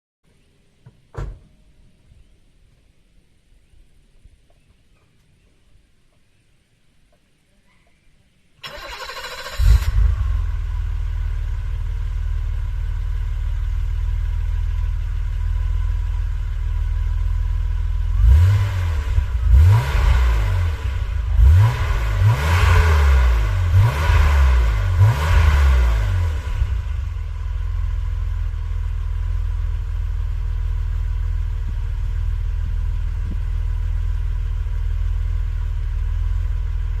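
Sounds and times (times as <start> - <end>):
engine revving: 8.6 - 11.7, 18.0 - 27.3
car engine starting and idling: 8.6 - 37.0.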